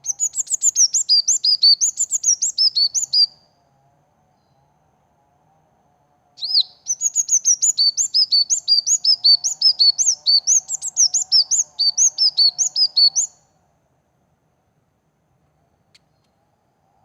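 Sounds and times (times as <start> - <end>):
songbird chirping: 0.0 - 3.6, 6.4 - 13.7.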